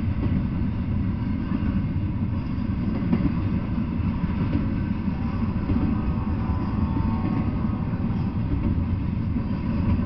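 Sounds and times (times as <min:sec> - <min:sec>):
freight train wheels rumbling: 0:00.0 - 0:10.0.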